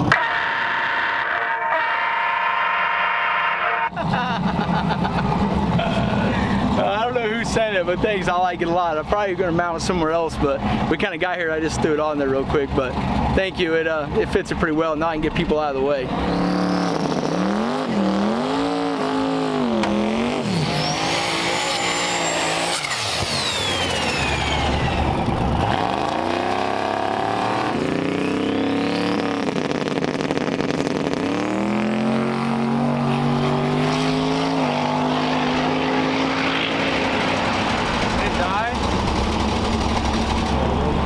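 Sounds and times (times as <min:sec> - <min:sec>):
drag car engine revving: 0:03.9 - 0:41.0
turbo whistling: 0:20.4 - 0:25.9.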